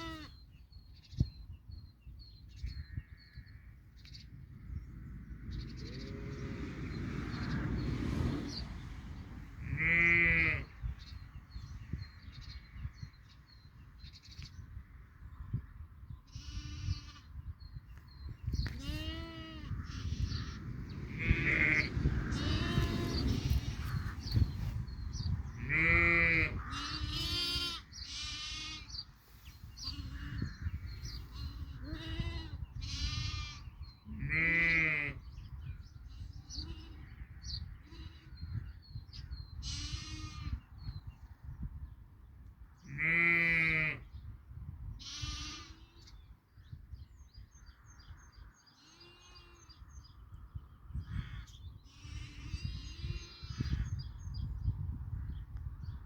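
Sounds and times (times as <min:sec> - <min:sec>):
sheep bleating: 0:00.0 - 0:00.4, 0:18.8 - 0:20.2, 0:25.6 - 0:28.9, 0:45.0 - 0:45.9.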